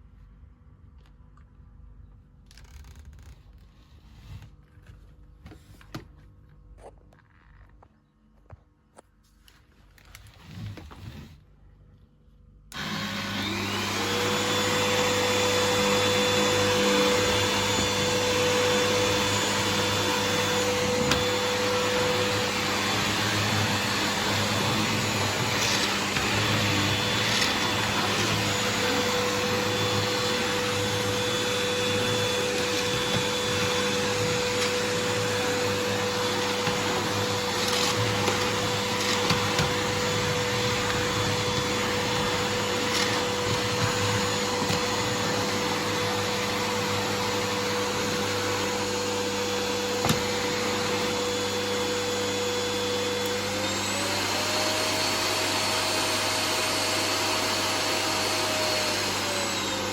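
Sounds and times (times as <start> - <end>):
vacuum cleaner running: 12.7 - 59.9.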